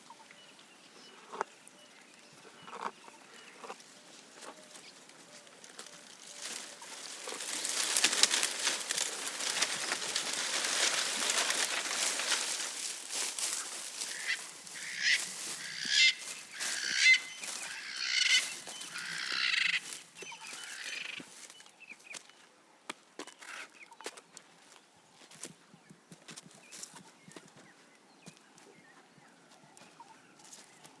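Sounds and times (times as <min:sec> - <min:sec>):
bird calling: 0:00.0 - 0:21.6
leaves rustling and crunching: 0:03.9 - 0:21.7.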